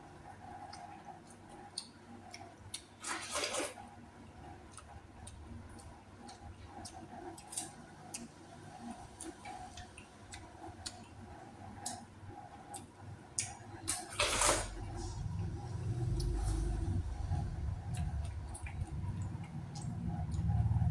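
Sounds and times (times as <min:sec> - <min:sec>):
person chewing food: 0:00.5 - 0:03.8, 0:04.5 - 0:15.0, 0:15.8 - 0:20.9.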